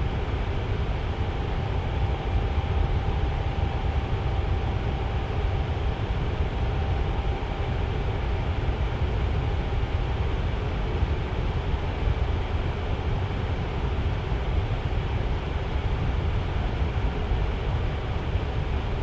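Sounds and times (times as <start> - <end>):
faint steady hum: 0.0 - 19.0
fan airflow rush: 0.0 - 19.0.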